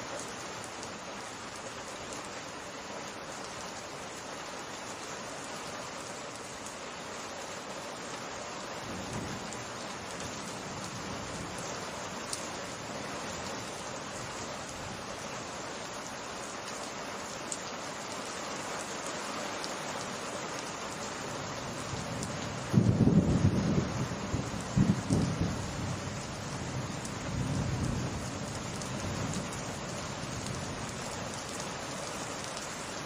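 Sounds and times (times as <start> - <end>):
rain pattering on surfaces: 0.0 - 33.0
thunder rumble: 22.7 - 28.3.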